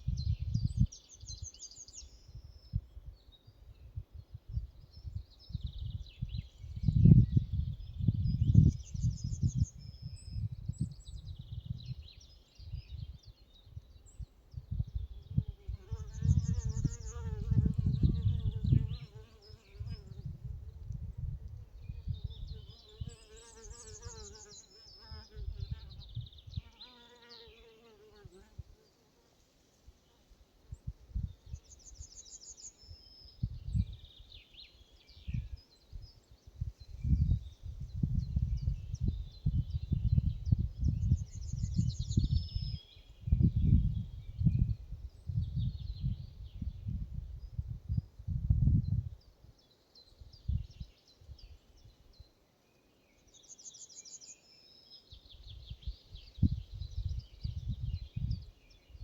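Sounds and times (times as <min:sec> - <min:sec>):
small birds chirping: 0:00.0 - 0:29.0
songbird singing: 0:00.0 - 0:29.2, 0:30.0 - 0:59.0.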